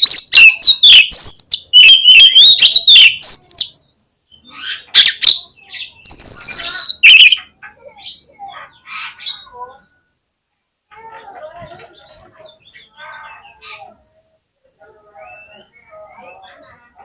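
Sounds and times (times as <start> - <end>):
bird singing whistled notes: 0.0 - 7.4, 15.2 - 16.7.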